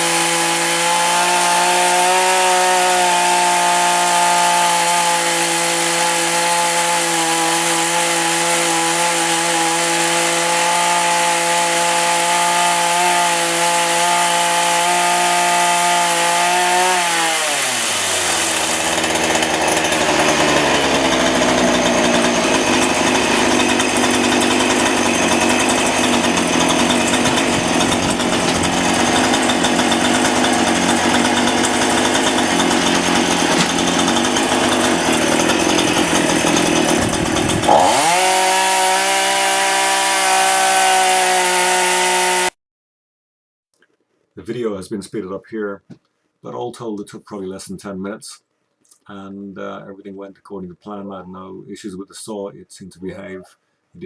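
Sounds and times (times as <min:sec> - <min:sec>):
chainsaw cutting metal: 0:00.0 - 0:42.5.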